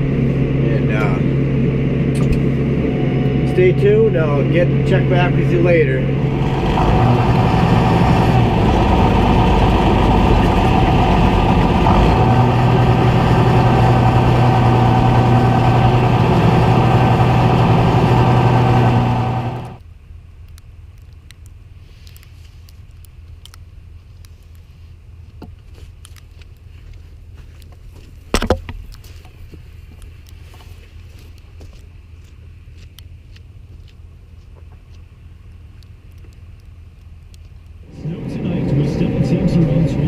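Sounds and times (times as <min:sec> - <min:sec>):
vehicle engine running: 0:00.0 - 0:19.8, 0:37.8 - 0:40.0
small clicks: 0:20.4 - 0:24.7, 0:35.8 - 0:37.8.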